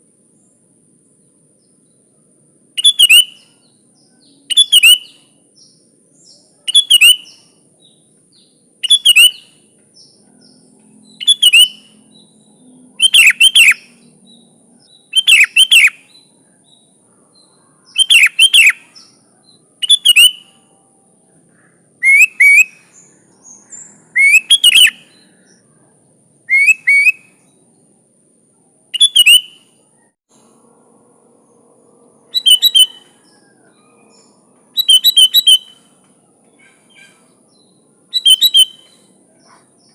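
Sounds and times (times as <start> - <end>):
bulbul calling: 2.8 - 5.8, 6.6 - 7.6, 8.8 - 12.3, 13.0 - 16.2, 17.9 - 20.6, 21.7 - 25.6, 26.5 - 27.5, 28.9 - 30.0, 32.3 - 39.9
faint high-pitched tone: 20.4 - 21.9.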